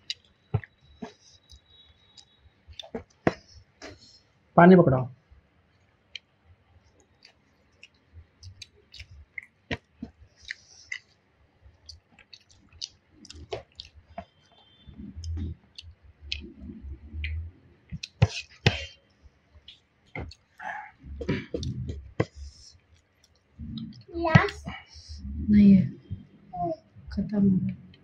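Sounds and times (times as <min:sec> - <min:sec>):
chewing and mouth smacks: 0:00.0 - 0:04.1, 0:06.1 - 0:18.8, 0:19.6 - 0:24.1
low murmuring: 0:20.6 - 0:22.7, 0:23.6 - 0:28.0.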